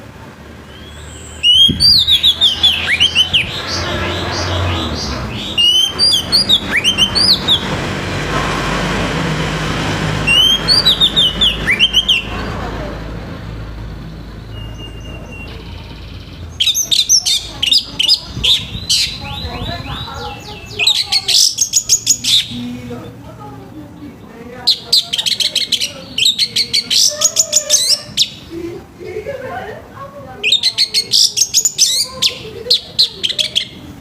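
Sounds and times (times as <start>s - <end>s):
bird singing whistled notes: 0.7s - 7.7s, 10.2s - 12.3s, 14.2s - 22.6s, 30.4s - 33.8s.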